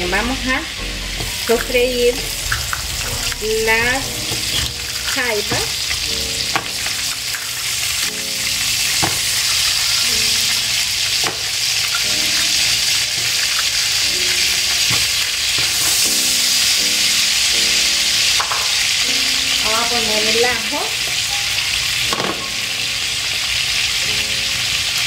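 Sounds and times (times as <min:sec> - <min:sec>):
crabs frying in hot oil: 0:00.0 - 0:25.0.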